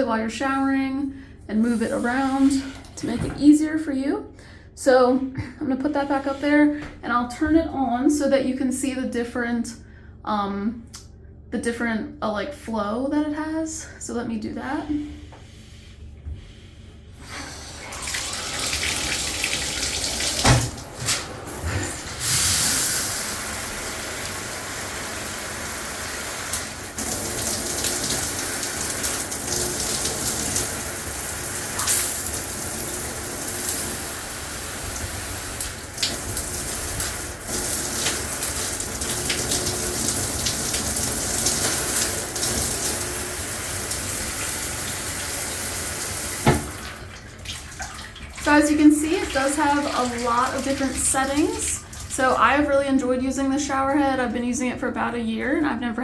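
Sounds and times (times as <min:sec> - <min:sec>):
shower head spraying water: 0:17.5 - 0:46.8
shower head setting knocks: 0:46.4 - 0:46.8.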